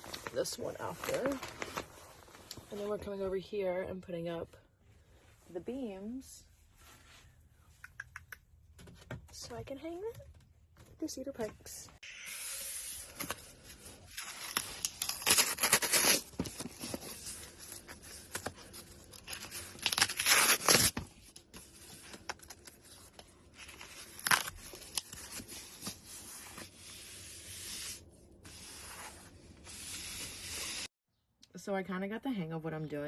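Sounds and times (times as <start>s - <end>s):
insulation tearing and crinkling: 14.0s - 21.0s, 22.0s - 26.0s.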